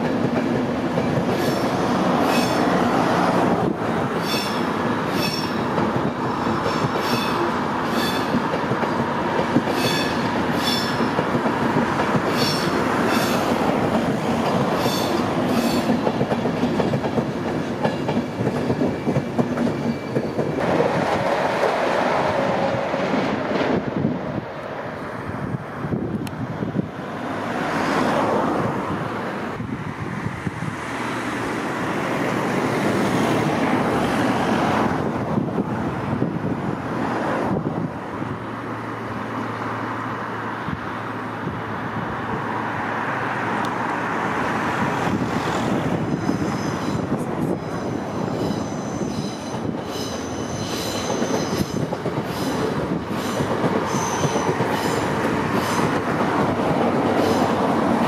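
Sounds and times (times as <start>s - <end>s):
train wheels rumbling and clattering: 0.0s - 38.7s, 41.4s - 58.0s
high-pitched wheel squeals: 4.2s - 5.6s, 9.7s - 11.0s, 14.8s - 15.9s, 46.1s - 52.6s, 53.2s - 55.0s.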